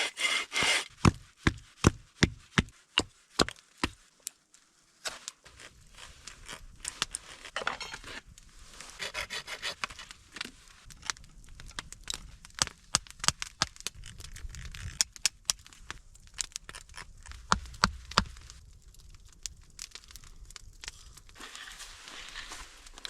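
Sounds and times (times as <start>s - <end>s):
scraping and rubbing strokes: 0.0s - 1.0s, 21.4s - 23.0s.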